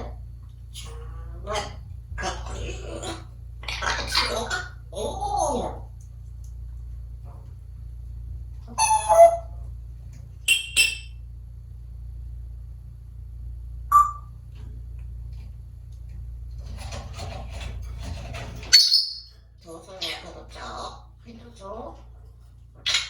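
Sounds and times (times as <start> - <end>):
parrot voice-like call: 0.8 - 5.9, 8.7 - 9.6
parrot squawks: 1.6 - 5.7, 8.7 - 9.6, 18.7 - 19.3
parrot whistle: 8.8 - 9.5, 13.9 - 14.3.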